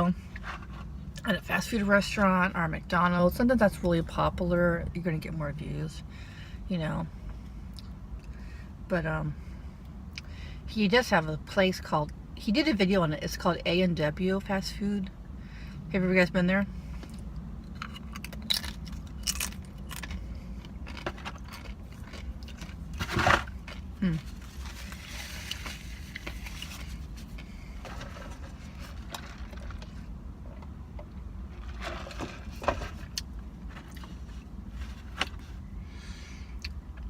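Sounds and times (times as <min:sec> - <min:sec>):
steady low hum: 0:00.0 - 0:37.0
food crunching: 0:17.7 - 0:30.0.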